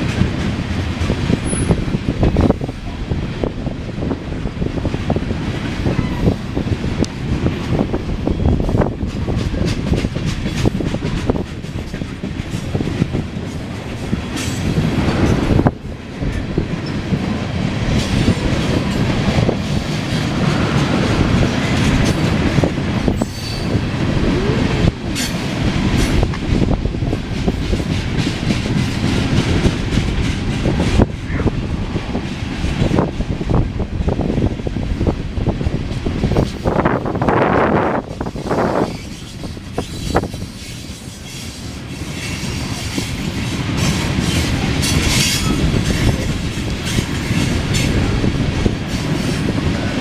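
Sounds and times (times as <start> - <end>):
wheels clacking over rail joints: 0.0 - 50.0
train wheel squeals: 1.4 - 1.8, 16.3 - 17.0, 23.1 - 23.9, 38.2 - 48.1.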